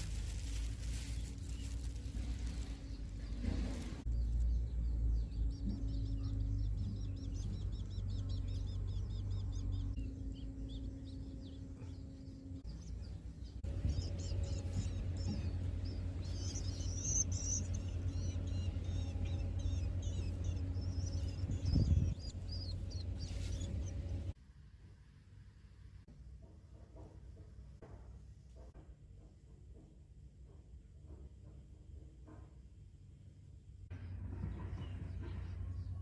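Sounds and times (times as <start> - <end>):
nestlings chirping: 0.0 - 24.3
low rumble: 0.0 - 24.4.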